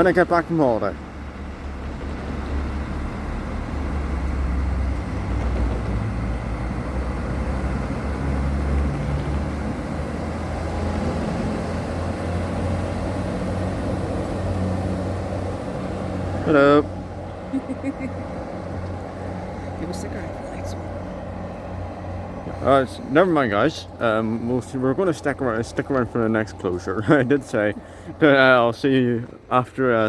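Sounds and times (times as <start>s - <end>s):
diesel train rumbling past: 0.0s - 30.0s.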